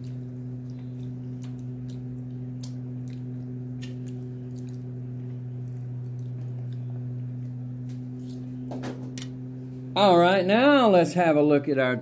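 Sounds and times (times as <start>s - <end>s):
person chewing food: 0.0s - 8.6s
steady low hum: 0.0s - 12.0s.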